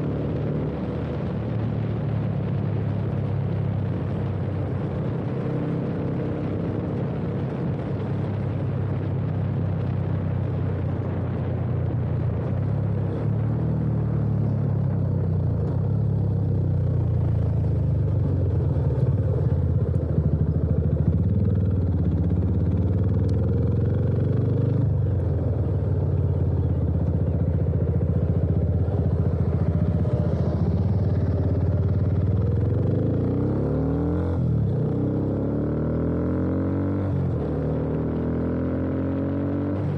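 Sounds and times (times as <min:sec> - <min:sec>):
motorcycle exhaust note: 0:15.9 - 0:39.9.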